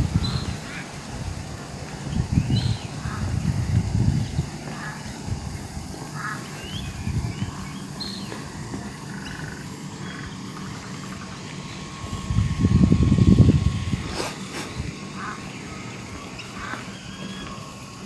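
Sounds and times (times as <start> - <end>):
quick rattling call: 0.0 - 18.0
animal chirps and calls: 14.0 - 18.0.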